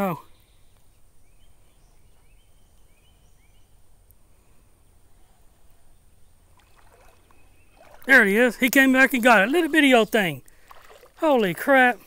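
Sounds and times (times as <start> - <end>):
bird chirping: 0.0 - 4.0, 5.1 - 10.2.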